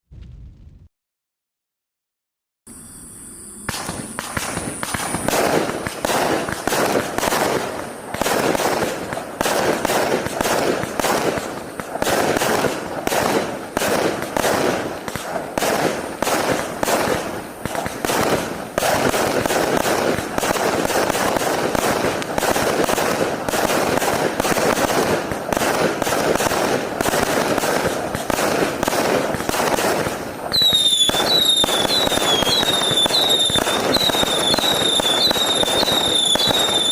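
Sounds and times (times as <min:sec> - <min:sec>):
high falling whistles: 0:02.7 - 0:08.3, 0:30.5 - 0:36.9
fireworks shots and bursts: 0:03.6 - 0:36.9.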